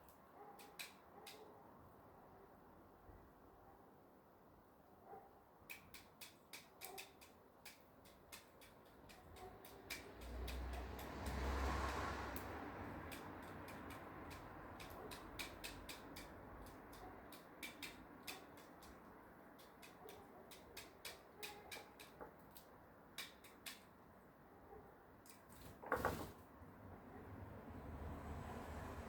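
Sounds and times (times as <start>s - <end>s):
faint small clicks and ticks: 5.7s - 11.5s, 12.3s - 23.9s.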